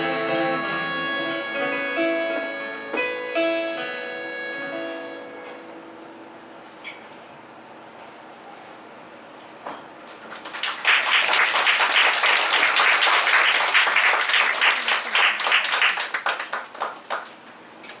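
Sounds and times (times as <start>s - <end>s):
audience applauding: 10.3s - 17.4s.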